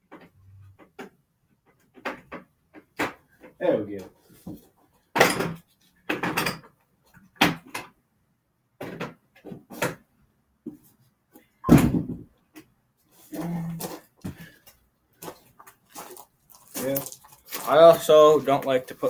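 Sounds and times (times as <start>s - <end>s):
objects knocking and clattering: 0.0s - 3.6s, 4.4s - 8.0s, 8.8s - 10.9s, 11.6s - 12.7s.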